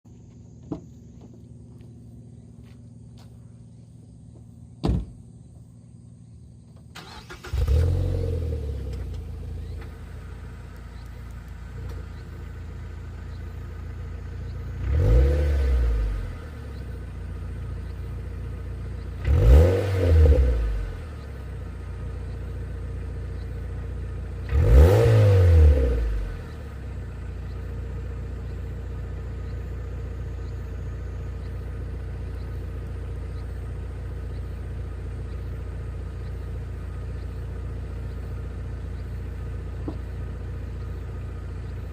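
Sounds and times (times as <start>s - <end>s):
car engine starting and idling: 0.1s - 41.9s
engine revving blips: 14.3s - 18.2s, 18.9s - 21.6s, 23.2s - 41.9s.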